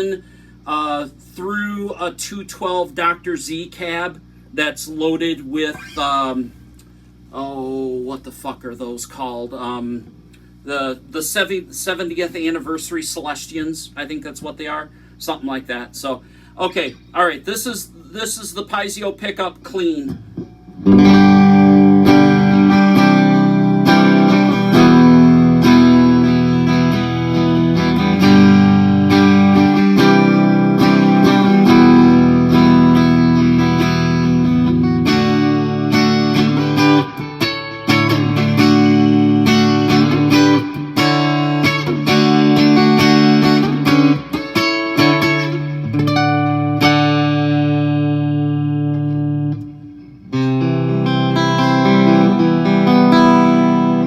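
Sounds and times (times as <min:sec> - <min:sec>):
clean electric guitar chords: 0:20.1 - 0:54.0.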